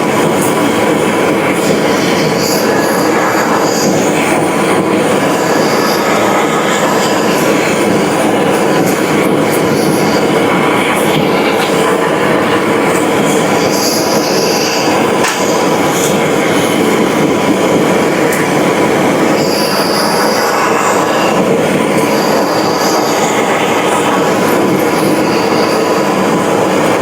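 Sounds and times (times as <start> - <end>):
metal-on-metal squeals: 9.5 - 10.6, 13.6 - 15.6, 19.4 - 26.3.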